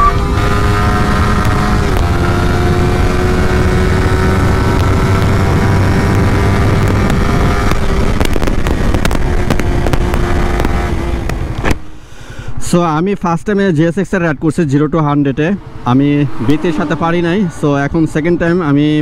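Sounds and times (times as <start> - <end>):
motorcycle engine at high revs: 0.0 - 11.8
wind rush on microphone: 0.0 - 11.8.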